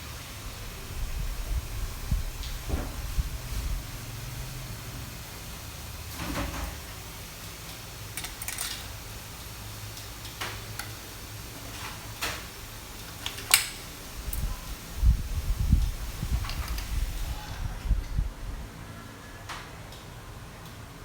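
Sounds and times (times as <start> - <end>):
metallic clicks and clinks: 8.2 - 9.0, 13.1 - 14.5.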